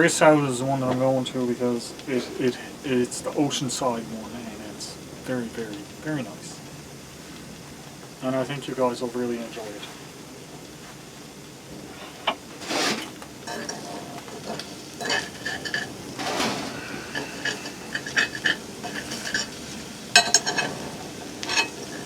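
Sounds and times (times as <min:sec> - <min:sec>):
spatula scraping a frying pan: 0:11.9 - 0:22.0
pan clattering: 0:12.6 - 0:22.0.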